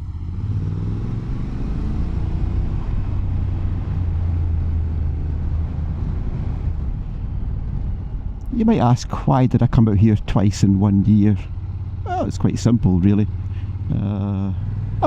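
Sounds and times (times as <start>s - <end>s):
motorcycle engine running: 10.6s - 15.0s.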